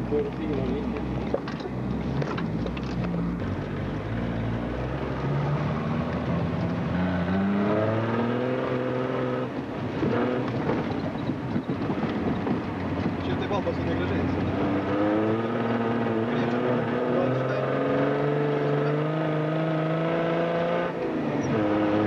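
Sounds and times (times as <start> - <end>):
car engine revving: 0.1 - 11.0, 11.8 - 22.0.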